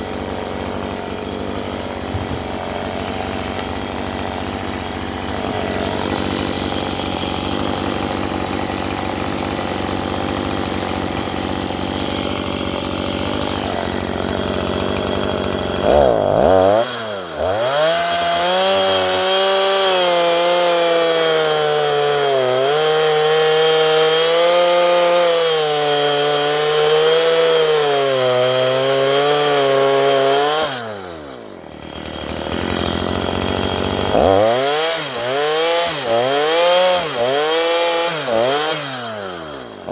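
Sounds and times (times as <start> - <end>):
chainsaw cutting wood at high revs: 0.0 - 39.9.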